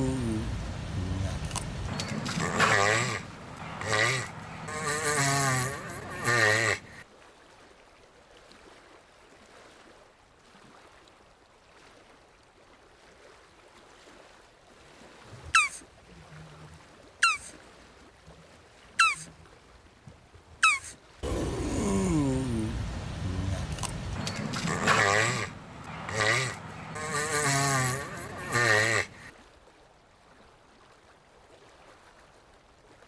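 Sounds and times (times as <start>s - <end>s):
tortoise groaning: 0.0s - 7.0s, 15.4s - 17.5s, 19.0s - 19.3s, 20.6s - 29.3s
tortoise squeaks: 0.0s - 7.0s, 15.6s - 15.8s, 17.2s - 17.5s, 19.0s - 19.3s, 20.6s - 29.3s.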